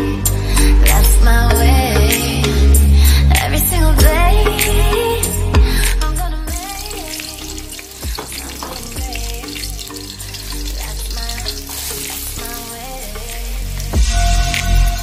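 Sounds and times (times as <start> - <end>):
background music: 0.0 - 15.0
chillies sizzling in hot oil: 6.6 - 15.0.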